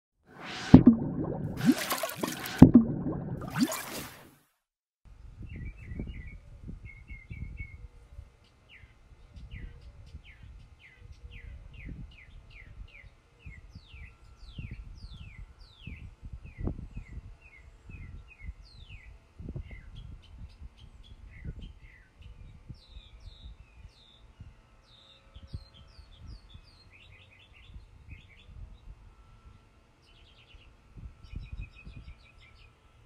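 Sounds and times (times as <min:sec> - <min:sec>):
low rumble: 0:00.4 - 0:01.7, 0:02.4 - 0:03.5
songbirds singing: 0:05.5 - 0:28.6, 0:30.0 - 0:32.8.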